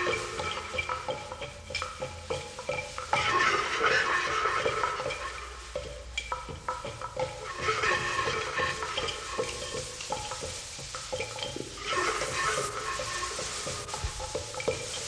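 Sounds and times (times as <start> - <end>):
percussion rattling and clicking: 0.0 - 15.0.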